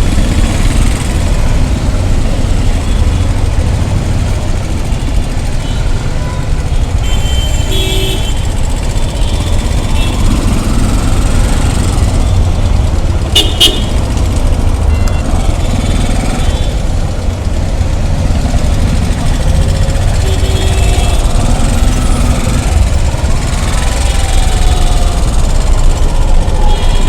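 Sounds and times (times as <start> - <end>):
road traffic rumble: 0.0 - 27.0
vehicle horn toots: 7.0 - 8.5, 13.3 - 14.0, 20.2 - 21.3.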